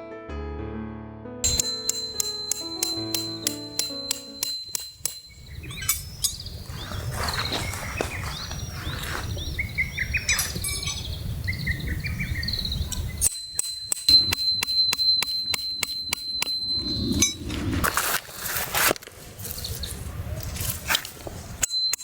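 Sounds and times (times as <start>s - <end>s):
music with bell-like ticking: 1.4s - 6.5s, 13.2s - 17.2s, 21.6s - 22.0s
birds chirping and singing: 1.5s - 14.4s.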